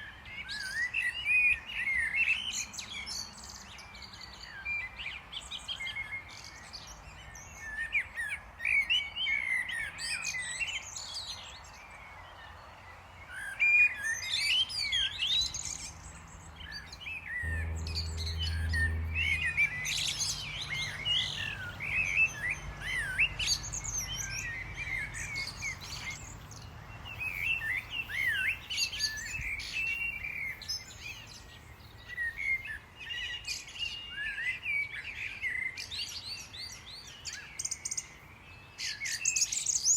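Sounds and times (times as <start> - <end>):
low hum: 15.5 - 31.4.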